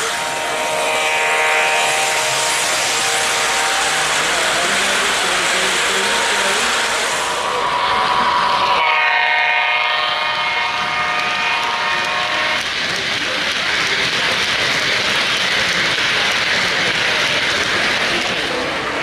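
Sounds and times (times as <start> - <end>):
model train horn: 0.0 - 5.1, 5.7 - 7.6, 8.7 - 12.7
model train cars rolling on track: 0.0 - 19.0.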